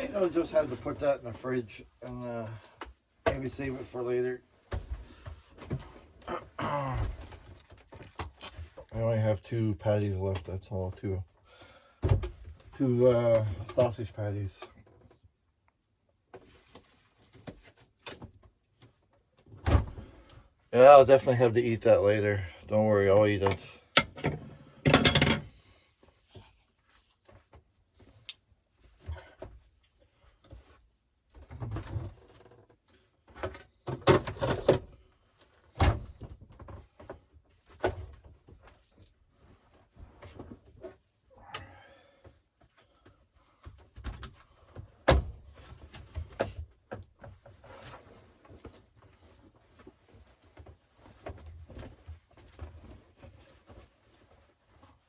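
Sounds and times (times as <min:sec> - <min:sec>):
dishes and utensils clinking: 0:24.9 - 0:25.5.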